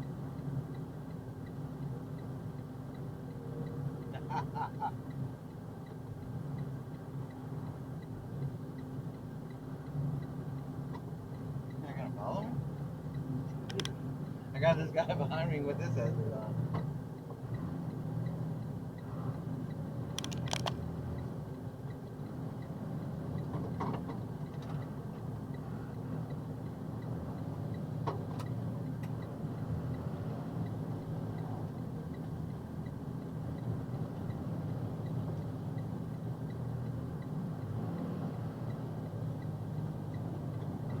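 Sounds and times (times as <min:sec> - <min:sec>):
truck engine and road noise: 0:00.0 - 0:41.0
brief clicks and rattles: 0:13.6 - 0:14.0, 0:20.2 - 0:20.8.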